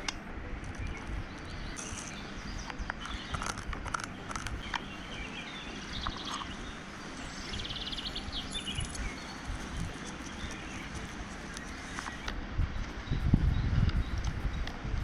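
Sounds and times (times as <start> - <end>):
scattered clicks: 0.0 - 6.6, 8.6 - 13.0
birds chirping and trilling: 0.0 - 15.0
steady low rumble: 0.0 - 15.0.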